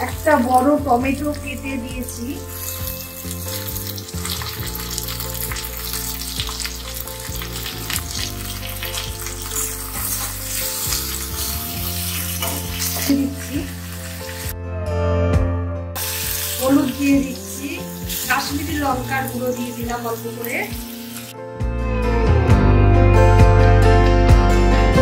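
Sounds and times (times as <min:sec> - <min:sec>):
vegetables sizzling in hot oil: 0:00.0 - 0:14.5, 0:16.0 - 0:21.3.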